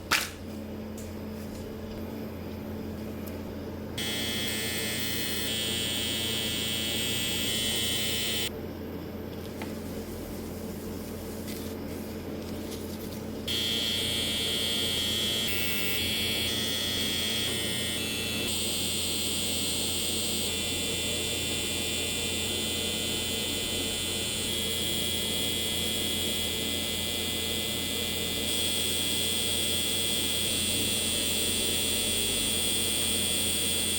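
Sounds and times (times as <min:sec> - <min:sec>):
tattoo machine buzzing: 0:04.0 - 0:08.5, 0:13.5 - 0:33.9.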